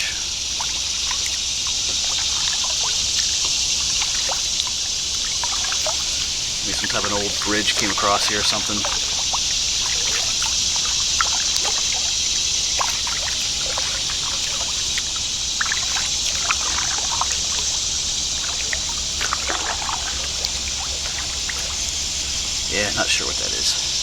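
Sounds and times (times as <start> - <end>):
moving water hiss: 0.0 - 24.0
paddle splashes and drips: 0.0 - 24.0.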